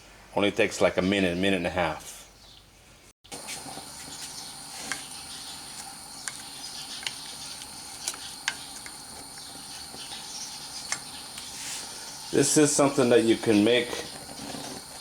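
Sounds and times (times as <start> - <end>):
pot heating with faint hiss: 3.3 - 15.0.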